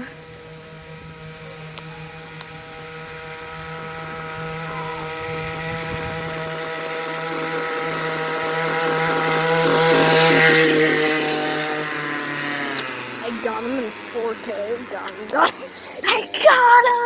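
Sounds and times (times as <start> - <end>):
small motorcycle engine approaching: 0.0 - 17.0.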